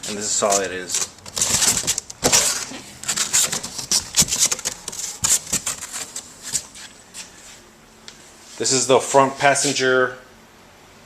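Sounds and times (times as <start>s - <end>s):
packaging rustling: 0.4s - 6.8s.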